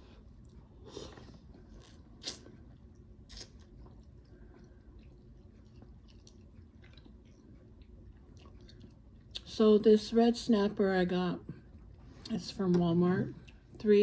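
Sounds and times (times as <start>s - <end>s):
person chewing food: 0.0s - 9.5s, 11.5s - 12.2s
mouth clicks and smacks: 2.2s - 2.6s.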